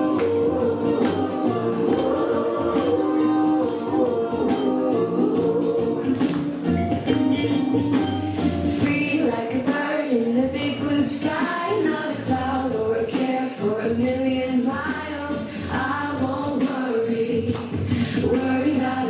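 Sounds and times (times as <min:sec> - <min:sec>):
children and women singing: 0:00.0 - 0:06.7, 0:08.7 - 0:19.0
instrumental backing: 0:00.0 - 0:12.9.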